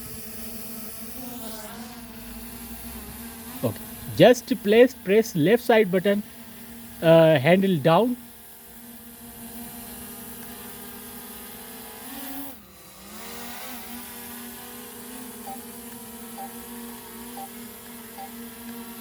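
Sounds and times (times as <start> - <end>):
drone propellers buzzing: 8.8 - 19.0.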